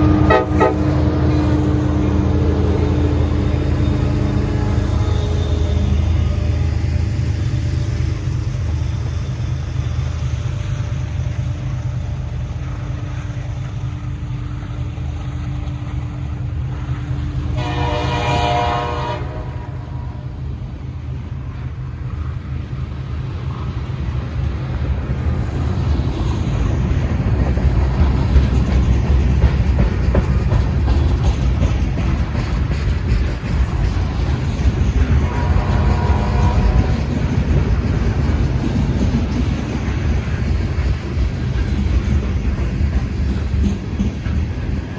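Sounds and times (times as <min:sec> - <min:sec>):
train horn blast: 0:00.0 - 0:06.8, 0:17.4 - 0:20.4, 0:35.0 - 0:37.2
diesel locomotive rumbling: 0:00.0 - 0:44.9
wheel and rail noise: 0:00.0 - 0:44.9.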